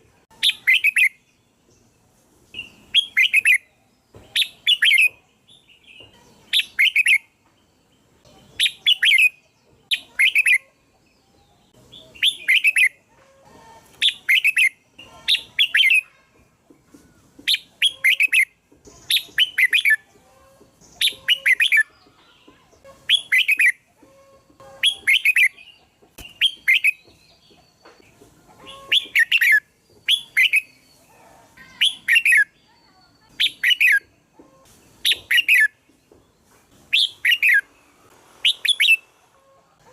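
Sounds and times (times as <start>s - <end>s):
bird whistled phrases: 0.4s - 1.2s, 6.5s - 7.3s, 8.4s - 10.6s, 12.2s - 13.0s, 21.0s - 21.9s, 23.1s - 23.8s, 28.7s - 30.8s, 31.7s - 32.6s, 33.2s - 34.1s, 38.4s - 39.0s.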